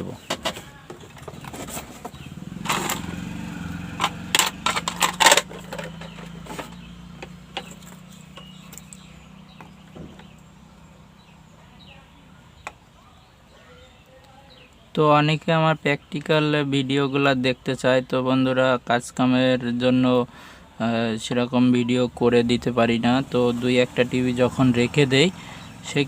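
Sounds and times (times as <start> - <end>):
steady engine-like hum: 0.0 - 13.5, 21.9 - 26.0
hand tools clicking and tapping: 3.9 - 10.4.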